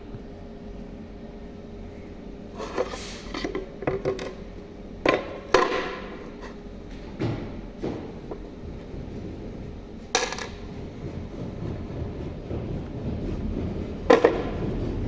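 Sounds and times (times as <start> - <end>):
steady low hum: 0.0 - 15.0
hard objects knocking and clattering: 7.1 - 15.0.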